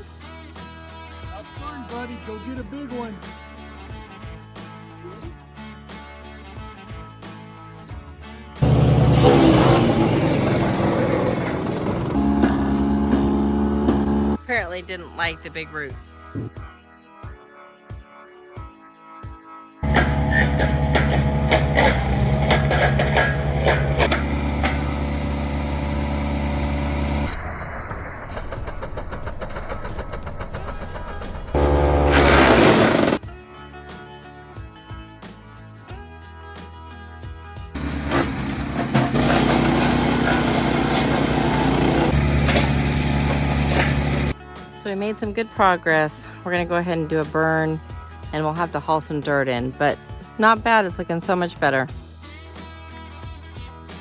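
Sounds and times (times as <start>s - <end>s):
wood chipper engine running: 8.6s - 14.4s, 19.8s - 27.3s, 31.5s - 33.2s, 37.8s - 44.4s.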